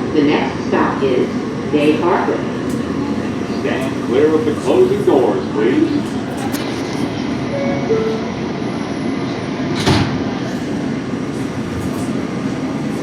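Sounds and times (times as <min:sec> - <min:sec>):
subway car rumbling: 0:00.0 - 0:13.0
two-note door chime: 0:07.5 - 0:08.5
train doors shutting with a thump: 0:09.7 - 0:10.7.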